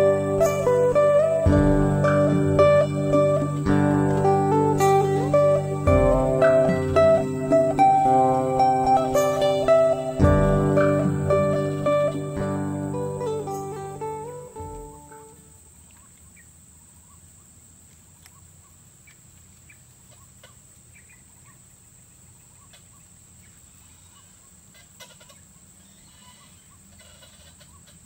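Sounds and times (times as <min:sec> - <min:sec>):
short bird calls: 0:23.8 - 0:28.0.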